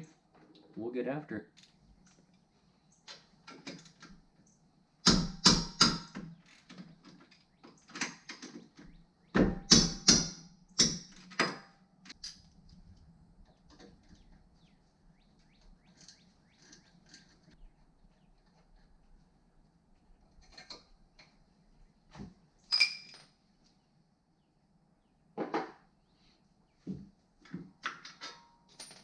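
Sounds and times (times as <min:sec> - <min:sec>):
metal tools clanking: 0:22.7 - 0:23.3.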